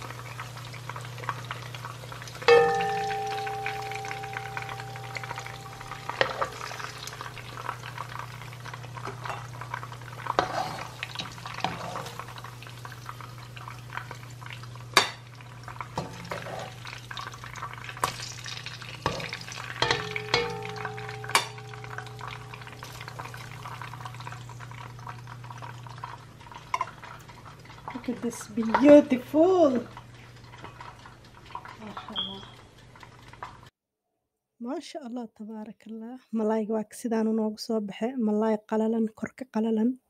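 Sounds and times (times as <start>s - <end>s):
fish sizzling in hot oil: 0.0s - 33.7s
metal utensils knocking on pan: 2.4s - 7.4s, 16.0s - 16.8s, 19.0s - 23.7s.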